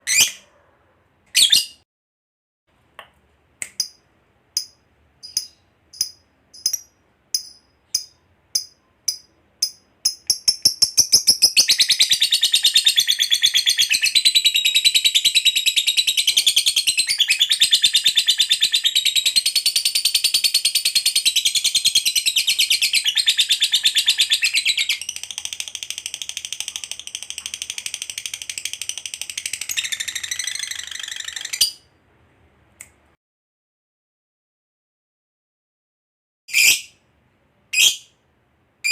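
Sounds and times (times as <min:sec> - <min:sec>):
lovebird chirping trill: 0:04.6 - 0:25.2.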